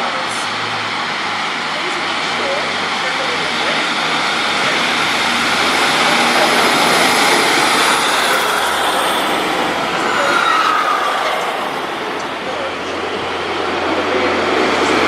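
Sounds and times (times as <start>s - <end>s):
train rail noise: 0.0s - 15.0s
high whine falling in pitch: 4.6s - 13.4s.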